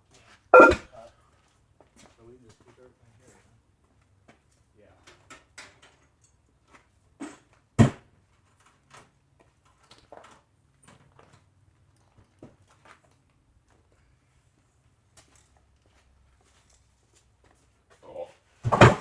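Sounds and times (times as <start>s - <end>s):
loud thump: 0.6s - 0.9s
knocks of things being handled: 18.6s - 19.0s.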